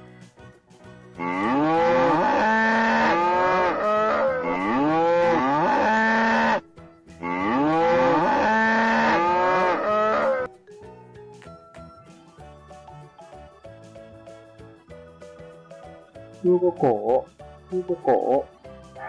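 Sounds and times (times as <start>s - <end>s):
cow mooing: 1.2s - 6.6s, 7.2s - 10.5s.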